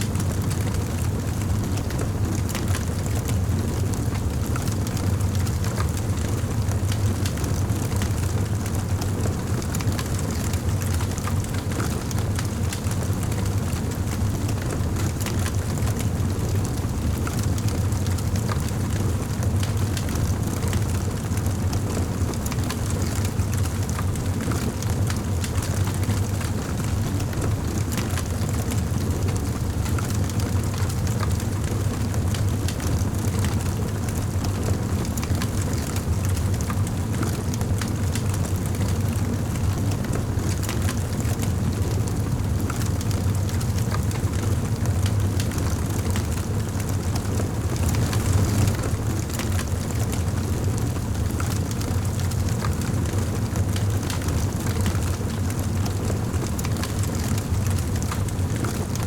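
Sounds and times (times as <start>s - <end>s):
wood fire crackling: 15.0s - 54.5s.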